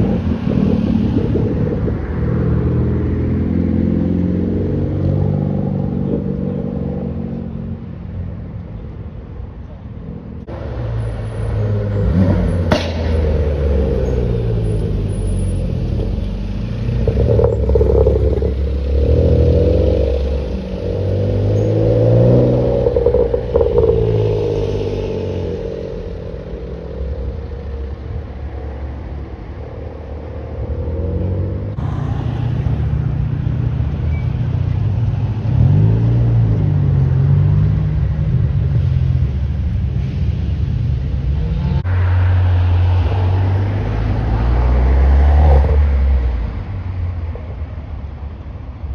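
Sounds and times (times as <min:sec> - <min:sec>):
car engines revving past: 0:10.4 - 0:47.6
sharp crack: 0:12.7 - 0:13.7.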